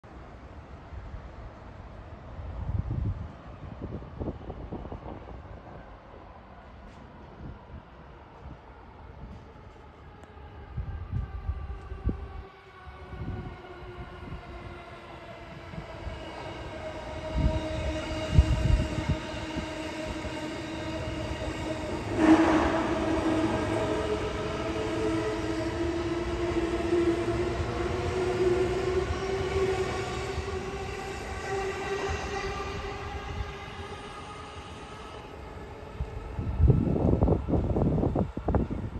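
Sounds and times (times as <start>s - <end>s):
train wheels rumbling on rails: 13.0s - 38.9s.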